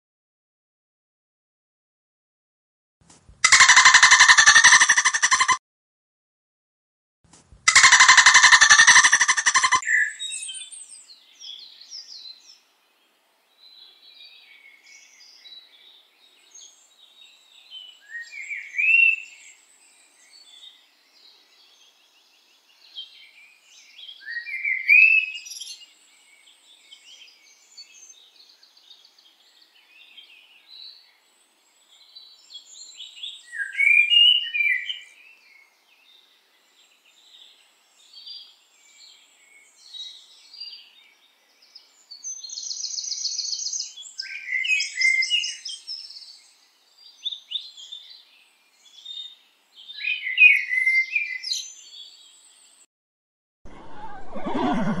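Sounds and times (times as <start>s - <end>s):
loud rising bird calls: 3.4s - 5.6s, 7.7s - 10.0s, 53.7s - 55.0s
birds chirping and trilling: 3.5s - 5.6s, 7.8s - 12.7s, 13.5s - 52.8s, 53.7s - 55.0s.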